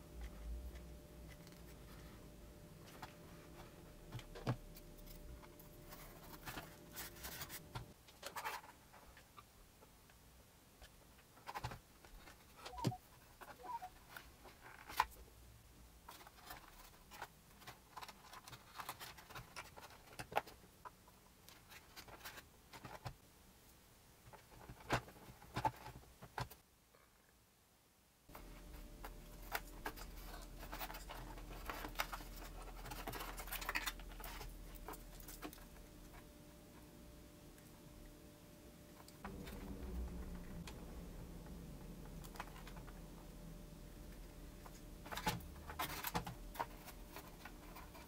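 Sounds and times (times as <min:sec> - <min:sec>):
faint steady hum: 0:00.0 - 0:48.0
hands handling small plastic parts: 0:16.0 - 0:23.2, 0:28.3 - 0:36.3.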